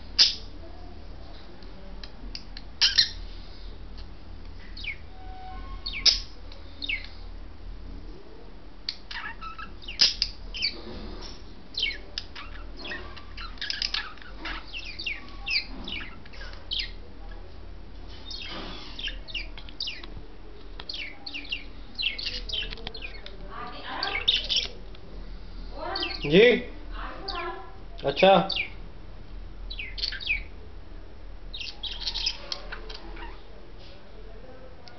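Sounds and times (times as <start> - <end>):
budgerigars chirping and chattering: 0.1 - 0.5, 2.8 - 3.4, 4.7 - 5.1, 5.8 - 7.2, 8.9 - 17.4, 18.1 - 24.8, 25.8 - 28.8, 29.7 - 30.6, 31.5 - 33.4.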